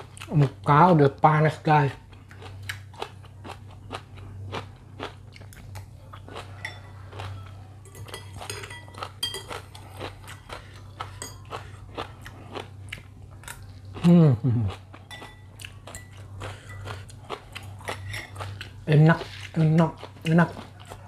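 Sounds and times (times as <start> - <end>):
person chewing and crunching: 0.0 - 21.0
cutlery clinking on bowl: 6.5 - 9.7, 11.1 - 11.6, 15.1 - 17.0, 17.8 - 18.5.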